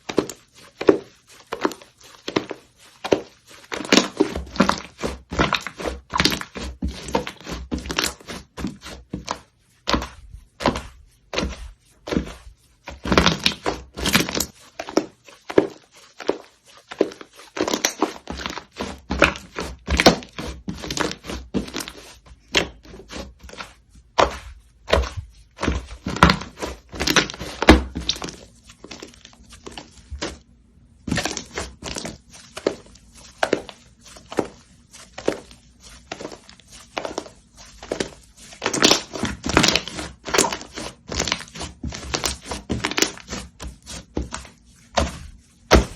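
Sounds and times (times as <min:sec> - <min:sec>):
slime squished by hand: 0:00.0 - 0:45.9.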